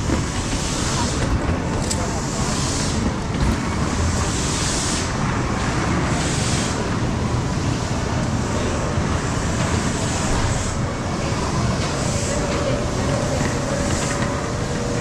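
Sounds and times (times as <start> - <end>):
train rumble and hiss: 0.0 - 15.0.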